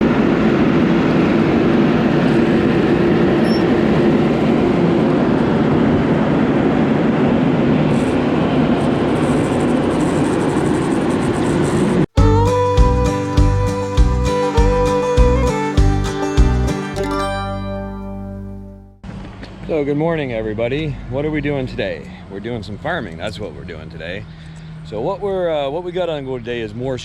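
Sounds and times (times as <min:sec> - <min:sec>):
heavy farm machinery droning: 0:00.0 - 0:10.5
country music with guitar and fiddle: 0:12.2 - 0:19.0.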